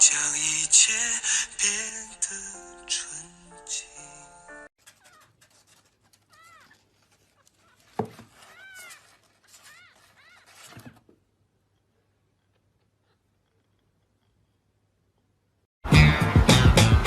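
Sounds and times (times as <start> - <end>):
cat meowing: 7.4 - 10.8.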